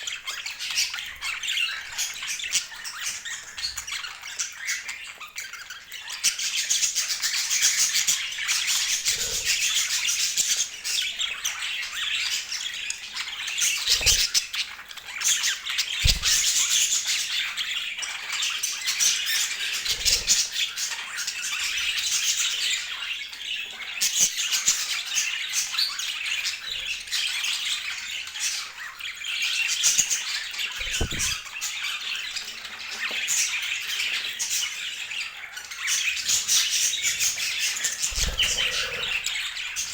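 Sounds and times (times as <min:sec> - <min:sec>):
budgerigars chattering and squawking: 0:00.0 - 0:39.9
low thumps: 0:30.8 - 0:31.4.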